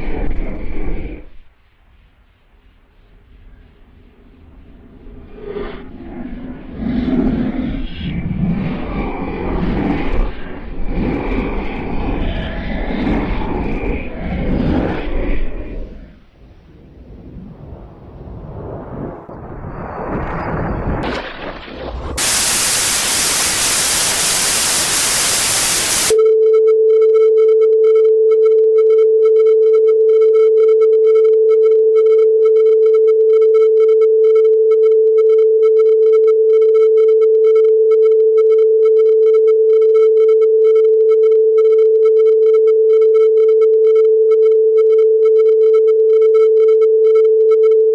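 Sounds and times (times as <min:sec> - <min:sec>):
static hiss: 0:22.2 - 0:26.2
electronic test tone: 0:22.2 - 0:47.9.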